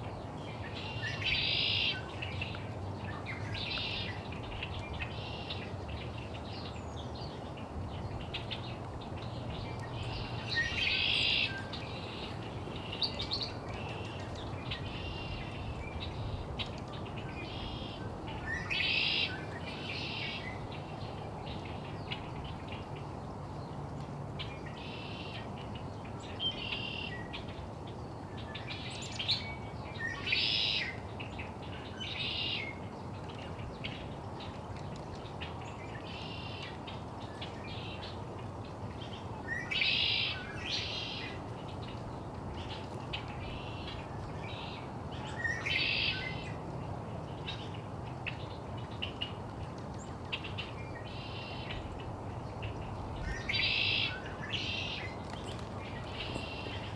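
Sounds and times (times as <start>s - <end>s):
steady low background noise: 0.0s - 56.9s
birds calling: 47.3s - 56.9s.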